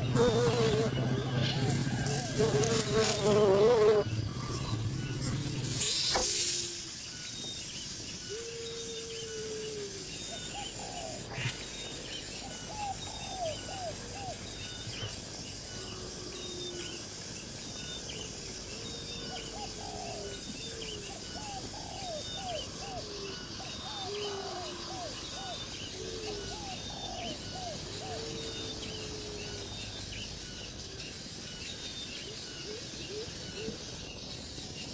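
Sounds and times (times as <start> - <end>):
steady background hiss: 0.0 - 34.9
bird cooing: 8.2 - 11.5, 12.6 - 14.4, 19.3 - 29.7, 32.6 - 33.9.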